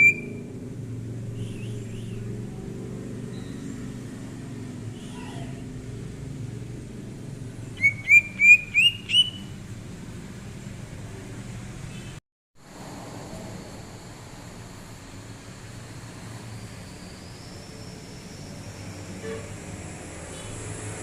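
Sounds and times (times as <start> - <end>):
bird chirping and whistling: 0.0 - 0.4, 1.4 - 2.2, 7.8 - 9.6.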